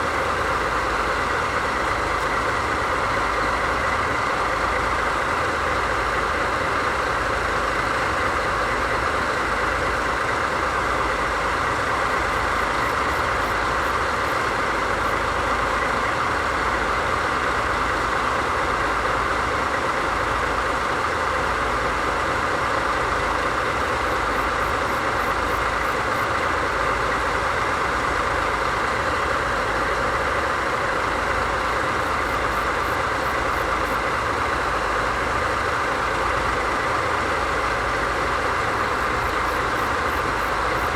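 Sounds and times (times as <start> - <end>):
diesel locomotive idling: 0.0 - 40.9.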